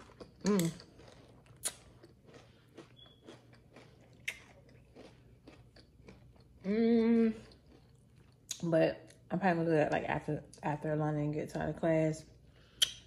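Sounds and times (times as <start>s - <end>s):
chewing crunchy granola: 0.0s - 9.2s.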